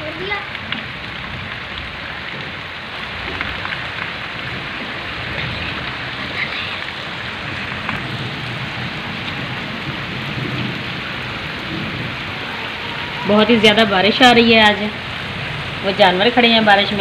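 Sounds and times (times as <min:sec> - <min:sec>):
heavy rain on dirt and puddles: 0:00.0 - 0:17.0.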